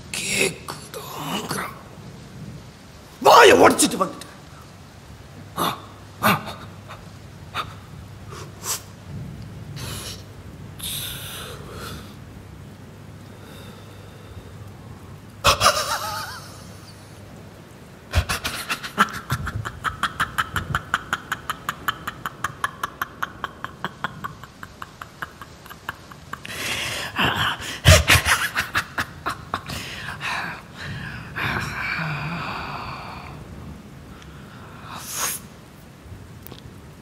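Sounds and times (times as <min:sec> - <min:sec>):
man laughing: 0:15.4 - 0:17.1, 0:18.1 - 0:30.7.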